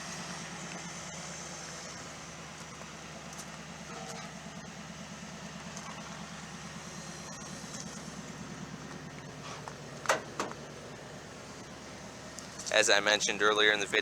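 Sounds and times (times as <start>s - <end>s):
engine idling: 0.0s - 14.0s
sharp clunk: 10.0s - 10.6s.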